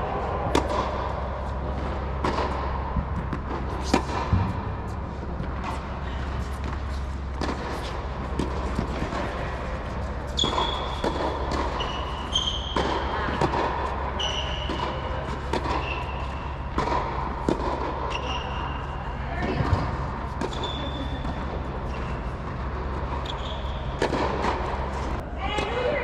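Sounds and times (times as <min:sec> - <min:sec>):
tennis balls struck and bouncing: 0:00.0 - 0:25.8
shoe squeaks: 0:08.9 - 0:13.3, 0:14.0 - 0:16.7, 0:18.0 - 0:19.8, 0:20.4 - 0:22.5, 0:23.1 - 0:24.1.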